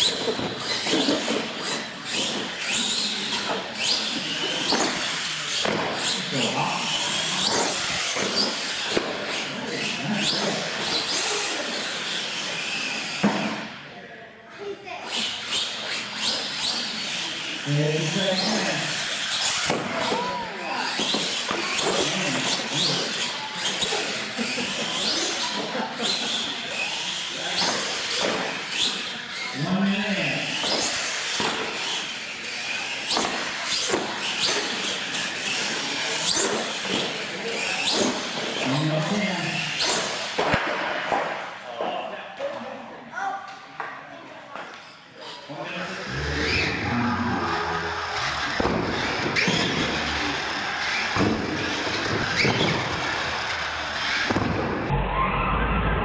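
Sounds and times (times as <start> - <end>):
tires bouncing on concrete: 0.0 - 13.8, 15.1 - 42.2, 46.0 - 56.0
electric motors whining: 15.2 - 40.4, 45.9 - 56.0.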